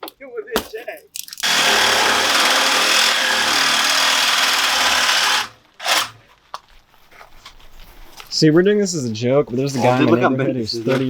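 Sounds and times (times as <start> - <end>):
loud steady machine noise: 1.4 - 6.2.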